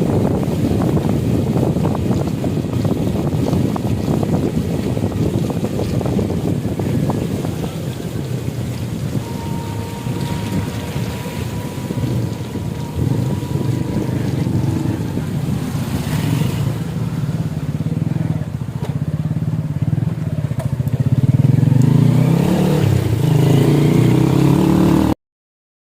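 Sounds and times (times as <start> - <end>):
vehicle engine droning: 0.0 - 25.2.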